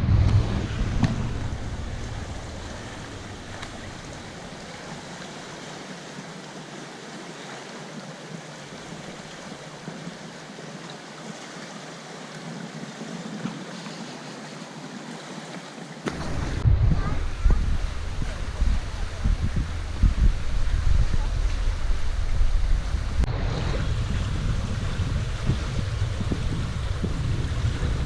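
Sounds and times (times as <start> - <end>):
heavy low rumble: 0.0 - 5.1, 16.1 - 28.0
steady rushing noise: 0.0 - 6.5, 16.1 - 28.0.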